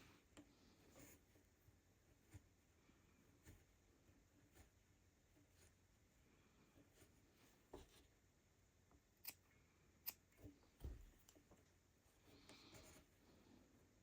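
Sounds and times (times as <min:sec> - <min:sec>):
soft clicks of rug hooking: 0:00.0 - 0:04.8, 0:08.9 - 0:13.1.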